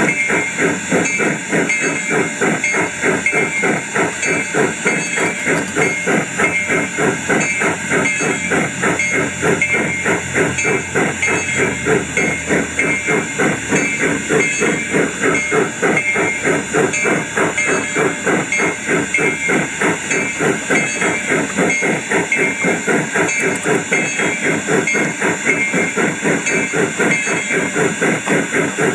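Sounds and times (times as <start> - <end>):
model steam locomotive chuffing: 0.0 - 28.9.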